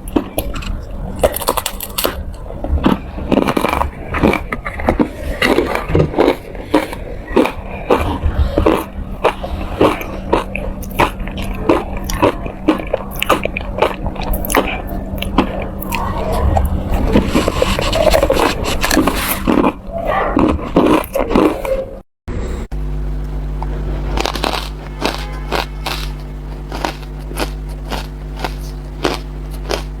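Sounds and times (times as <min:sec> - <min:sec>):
ice being crunched: 0:24.1 - 0:30.0.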